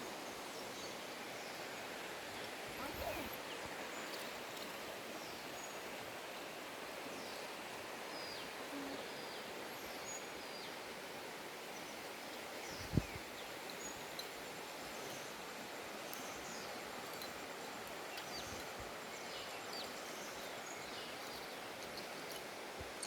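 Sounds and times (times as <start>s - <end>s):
steady hiss: 0.0s - 23.0s
small birds chirping: 0.3s - 5.9s, 11.7s - 15.4s, 16.1s - 22.5s.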